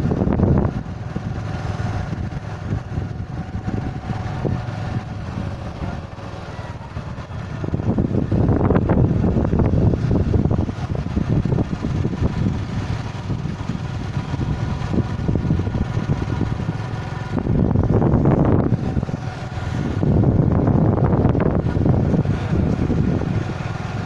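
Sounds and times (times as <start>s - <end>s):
wind rushing over microphone: 0.0s - 6.1s, 6.9s - 24.0s
motorcycle engine running: 0.0s - 24.0s.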